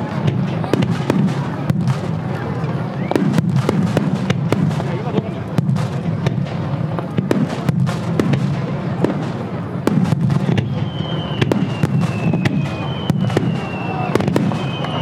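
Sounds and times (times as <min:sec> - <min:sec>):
fireworks bangs and crackles: 0:00.0 - 0:15.0
high whistle gliding down: 0:10.6 - 0:15.0.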